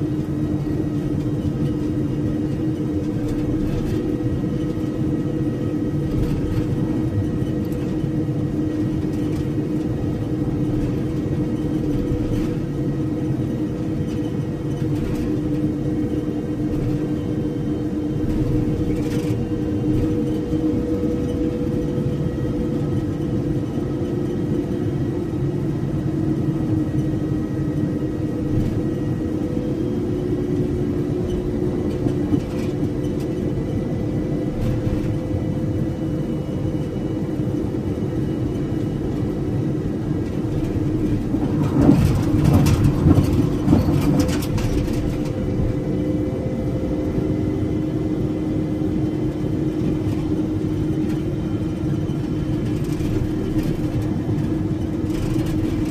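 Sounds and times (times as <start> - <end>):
vehicle engine and road drone: 0.0 - 55.9
rattling and knocks: 40.5 - 45.8.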